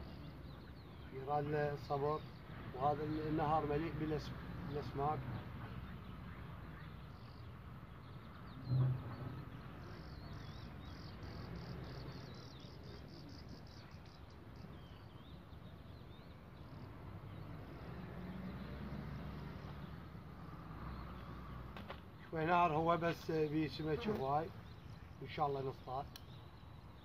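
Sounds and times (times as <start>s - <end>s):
bird chirping and warbling: 4.2s - 18.8s.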